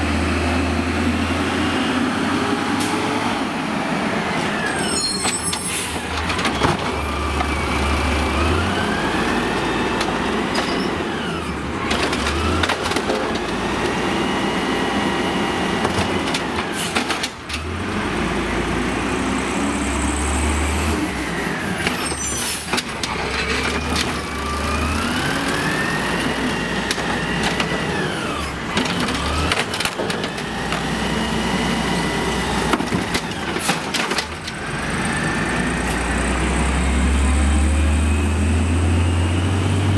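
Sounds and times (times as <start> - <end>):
garbage truck engine: 0.0 - 39.9.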